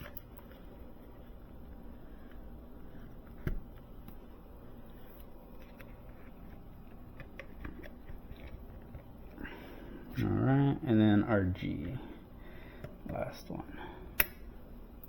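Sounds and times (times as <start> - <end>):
wire clicking into terminals: 14.1 - 15.0.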